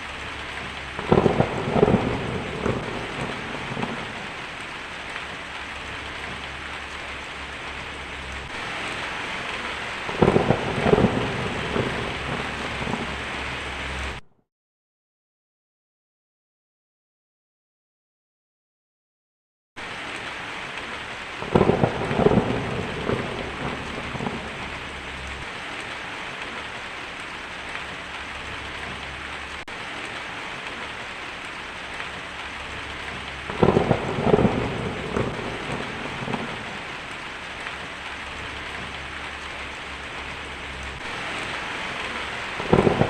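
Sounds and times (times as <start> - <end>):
rain hissing: 0.0 - 14.2, 19.8 - 43.0
thunder rolling: 0.2 - 4.7, 5.3 - 14.2, 21.4 - 25.5, 32.1 - 43.0.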